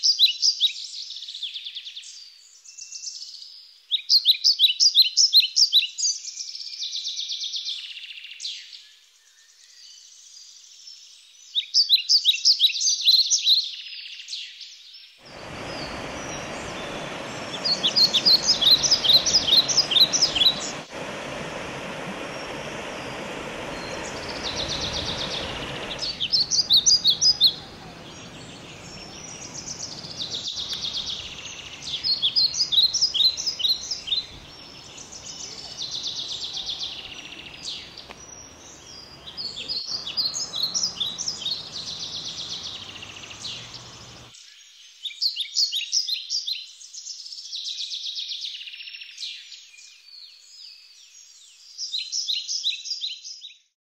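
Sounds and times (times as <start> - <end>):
songbird singing: 0.0 - 53.7
stream rushing over rocks: 15.2 - 44.3.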